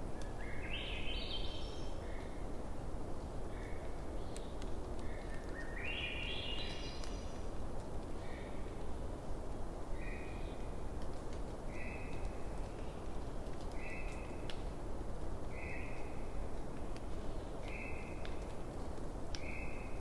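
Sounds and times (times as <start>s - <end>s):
wood fire crackling and popping: 11.0s - 15.1s, 16.5s - 19.4s.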